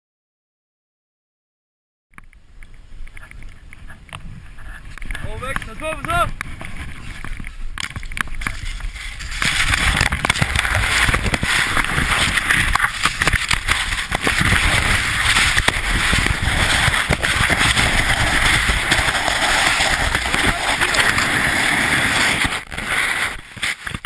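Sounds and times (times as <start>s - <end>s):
wind buffeting microphone: 2.7s - 22.7s
skis hissing over snow: 8.4s - 24.0s.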